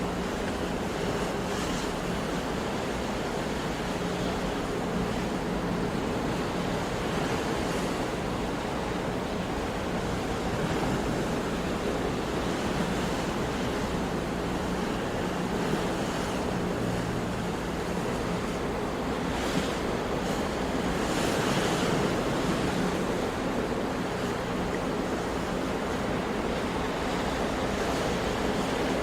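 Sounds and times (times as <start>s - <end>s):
sea waves breaking on shore: 0.0s - 29.0s.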